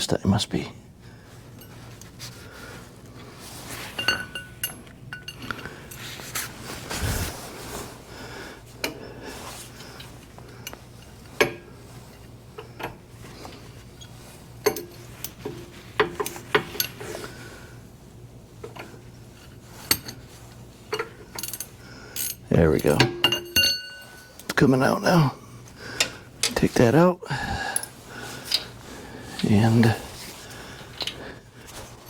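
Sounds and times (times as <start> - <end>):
metal hand tools clinking: 3.9 - 6.1, 21.0 - 24.5.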